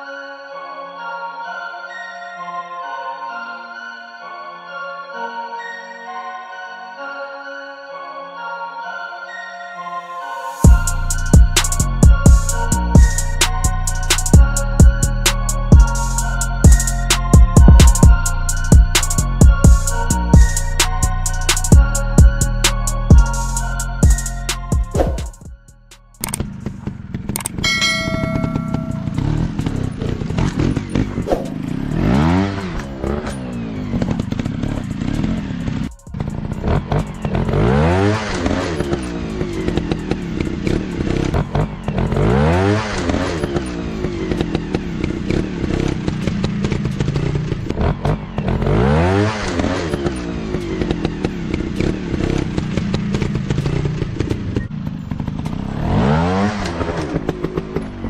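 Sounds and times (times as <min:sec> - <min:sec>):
dirt bike engines revving: 0:26.4 - 0:58.0.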